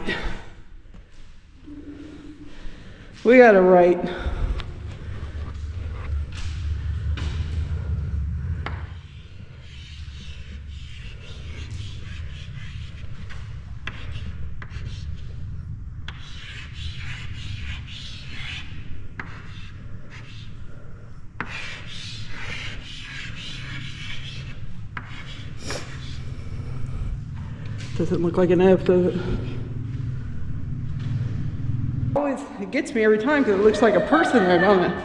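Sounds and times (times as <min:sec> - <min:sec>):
low rumble: 0:01.4 - 0:16.5, 0:26.0 - 0:35.0
rubbing and scuffing noise: 0:03.1 - 0:28.1.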